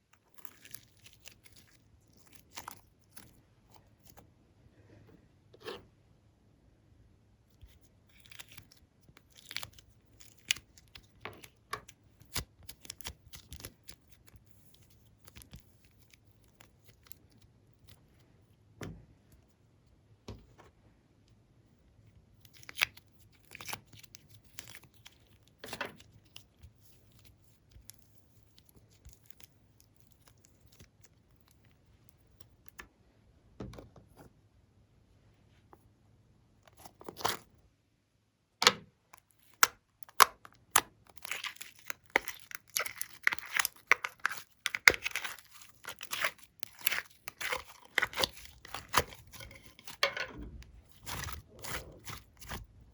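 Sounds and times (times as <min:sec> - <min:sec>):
slime popping and crackling: 0:39.3 - 0:50.1.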